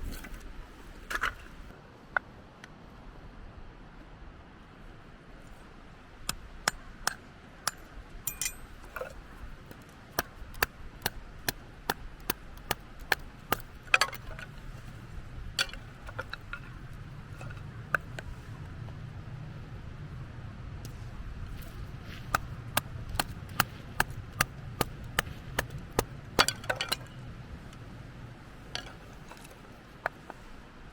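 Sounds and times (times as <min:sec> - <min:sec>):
firewood being split: 0:06.1 - 0:18.2, 0:20.9 - 0:27.2.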